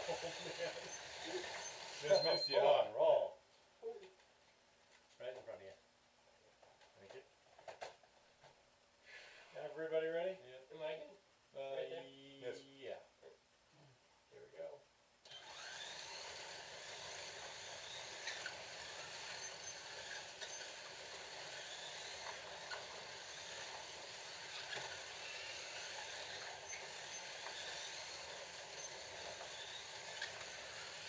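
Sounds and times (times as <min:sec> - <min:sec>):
slot car motors whirring: 0:15.3 - 0:31.0.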